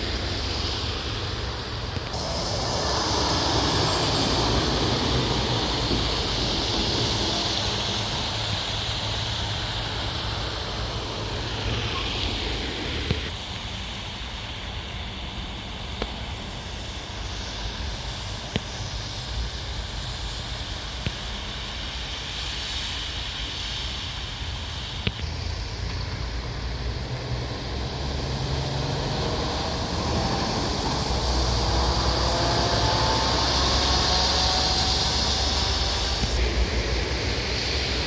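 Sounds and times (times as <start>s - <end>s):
heavy truck engine: 0.0s - 13.3s, 25.1s - 38.0s
road noise: 0.0s - 20.6s, 24.5s - 38.0s.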